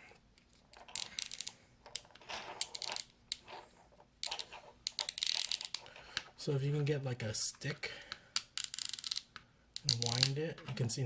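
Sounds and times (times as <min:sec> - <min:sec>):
adhesive strip clicking and crackling: 0:00.4 - 0:03.4, 0:04.2 - 0:05.9, 0:08.4 - 0:10.4.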